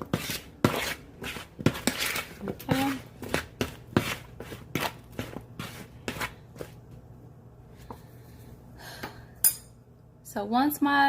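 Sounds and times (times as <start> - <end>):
utensil scraping cookware: 0.0 - 6.3.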